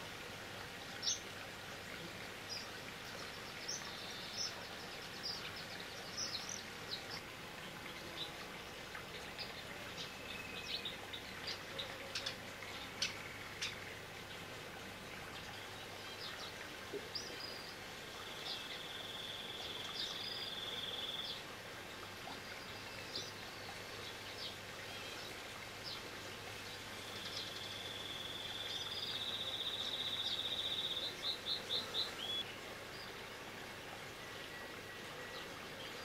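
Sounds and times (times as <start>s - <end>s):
small bird singing trills: 27.2s - 32.5s.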